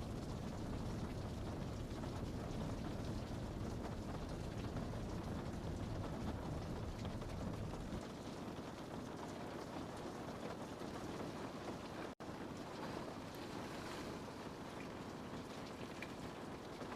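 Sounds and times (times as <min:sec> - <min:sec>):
low rumble: 0:00.0 - 0:08.0
rain on a window pane: 0:00.0 - 0:16.9.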